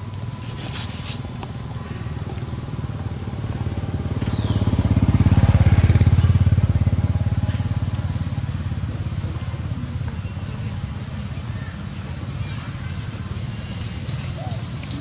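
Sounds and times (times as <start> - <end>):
vehicle engine passing by: 0.6 - 11.6.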